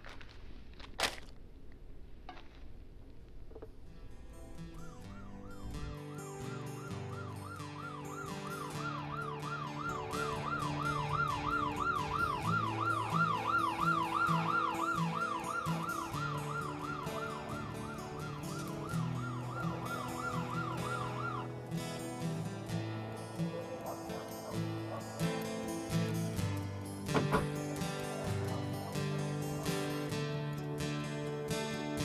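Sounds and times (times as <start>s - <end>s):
police siren yelping: 4.6s - 26.3s, 27.1s - 30.2s.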